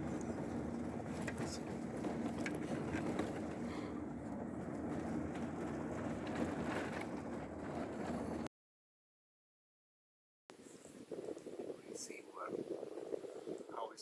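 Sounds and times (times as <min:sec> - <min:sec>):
car engine and road noise: 0:00.0 - 0:08.5
small knocks and rattles: 0:00.0 - 0:08.5.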